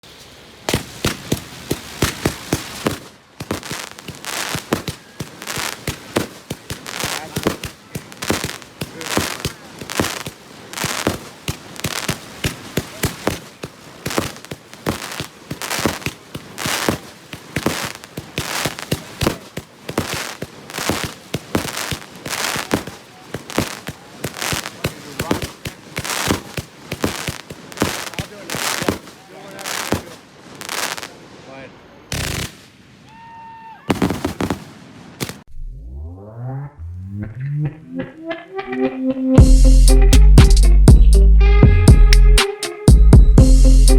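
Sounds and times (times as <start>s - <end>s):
firework shots banging: 0.0s - 31.2s, 32.1s - 33.1s, 33.9s - 35.5s
crackling hiss: 0.0s - 35.5s.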